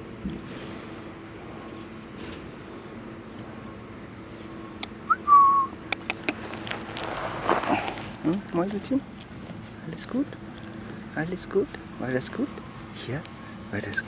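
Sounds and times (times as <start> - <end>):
faint steady hum: 0.0 - 14.0
high bird chirps: 2.9 - 6.9
loud rising whistle: 5.1 - 5.7
sharp clicks: 5.9 - 6.8.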